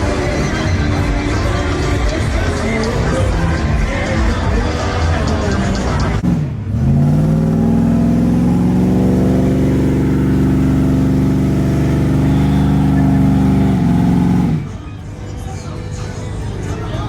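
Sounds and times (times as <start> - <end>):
vehicle engine revving: 6.0 - 14.9.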